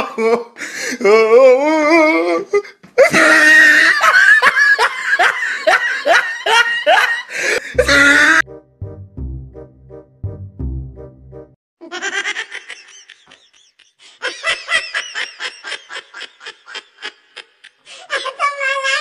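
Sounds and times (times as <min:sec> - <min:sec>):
loud hearty laughter: 0:03.0 - 0:08.4, 0:11.8 - 0:18.4
background music with low beat: 0:07.8 - 0:11.6.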